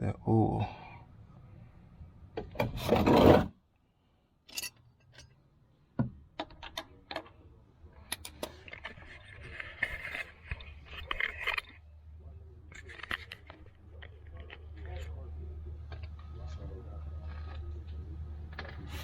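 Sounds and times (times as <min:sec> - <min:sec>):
loud rubbing scrape: 0:02.8 - 0:03.5
tools clicking and scraping: 0:04.4 - 0:05.4, 0:06.4 - 0:11.9, 0:12.7 - 0:15.2.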